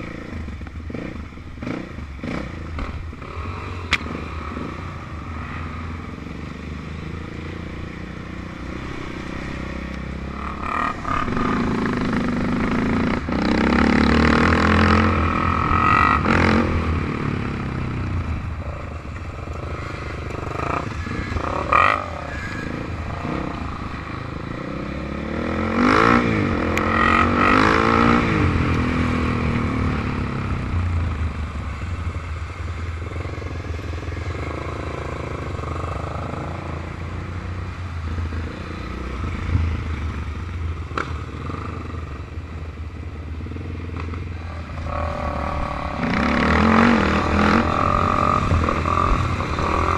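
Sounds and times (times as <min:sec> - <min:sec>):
off-road vehicle engines revving: 0:00.0 - 0:31.9, 0:43.4 - 0:49.9.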